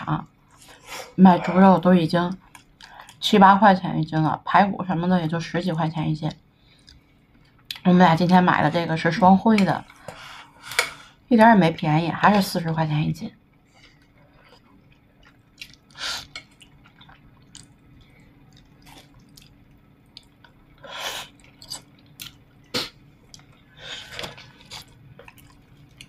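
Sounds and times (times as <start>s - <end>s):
faint steady hum: 0.0s - 26.0s
person chewing meat: 14.5s - 20.6s, 23.2s - 26.0s.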